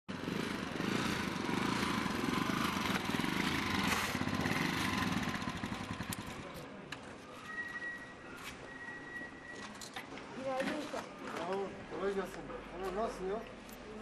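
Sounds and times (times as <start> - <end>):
small motorcycle engine running: 0.1 - 6.6.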